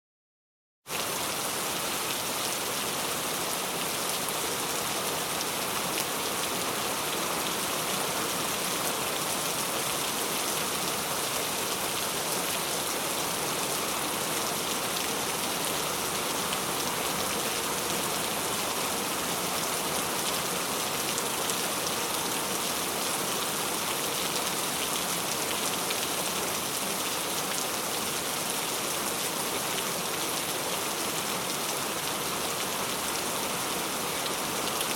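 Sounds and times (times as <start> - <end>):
heavy rain on hard surfaces: 0.9 - 34.9.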